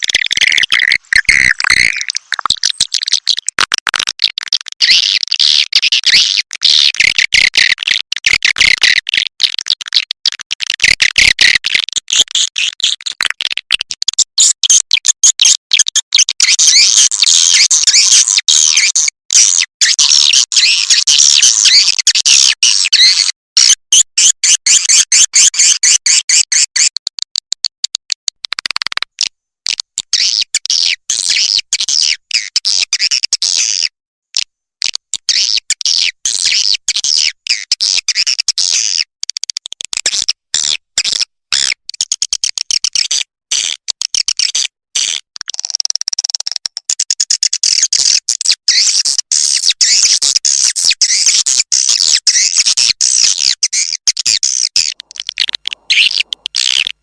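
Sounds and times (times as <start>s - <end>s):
swiftlets twittering chirps: 0.0s - 3.5s, 54.8s - 56.9s.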